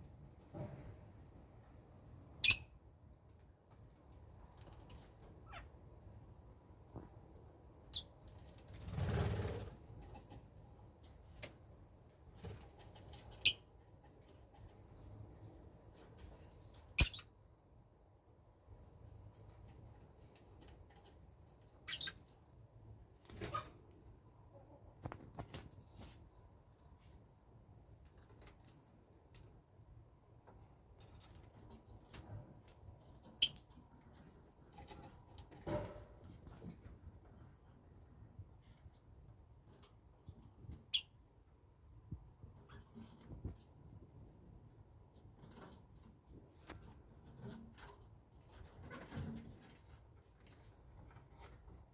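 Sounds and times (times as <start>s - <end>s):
small birds squeaking: 2.1s - 2.8s, 5.4s - 6.3s, 16.9s - 17.3s, 21.8s - 22.3s
faint ticks and scratches: 8.2s - 17.0s, 30.4s - 41.0s, 42.1s - 51.9s.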